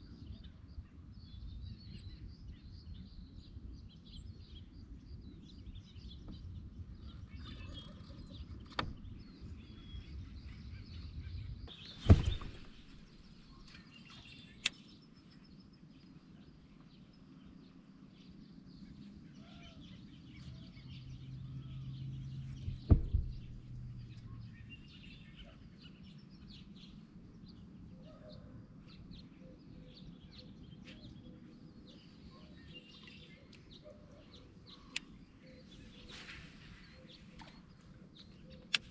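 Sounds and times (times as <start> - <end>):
low outdoor background noise: 0.0 - 38.9
small birds chirping: 0.0 - 38.9
sharp knocks: 12.0 - 13.1, 22.7 - 23.7.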